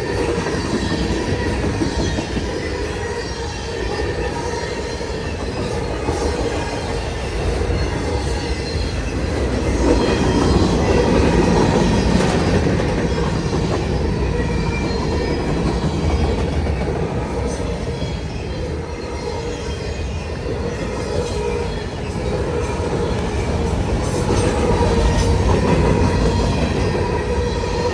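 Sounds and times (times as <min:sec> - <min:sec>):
train wheels on track: 0:00.0 - 0:27.9.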